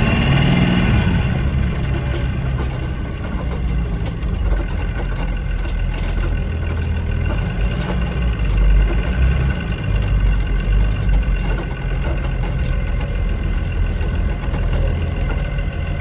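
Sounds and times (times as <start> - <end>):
bus engine idling: 0.0 - 16.0.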